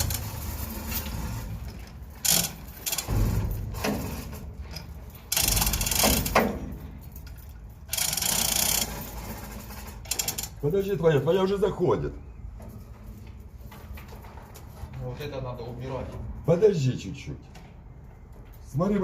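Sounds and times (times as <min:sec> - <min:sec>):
ratchet clicking rapidly: 0:02.2 - 0:04.0, 0:05.3 - 0:06.5, 0:07.8 - 0:10.6.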